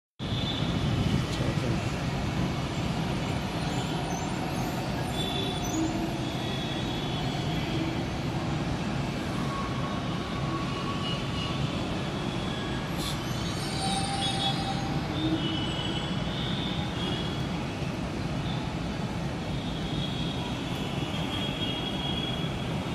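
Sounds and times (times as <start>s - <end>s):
metro train rumbling: 0.3s - 21.4s
high-pitched train squeals: 2.6s - 18.8s.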